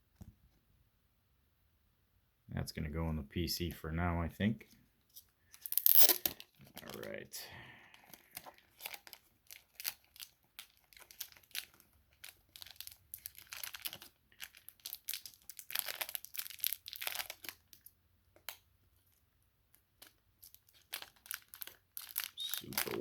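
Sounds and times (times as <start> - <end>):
packaging torn and crinkled: 5.6 - 7.1, 8.1 - 19.2, 20.0 - 23.0.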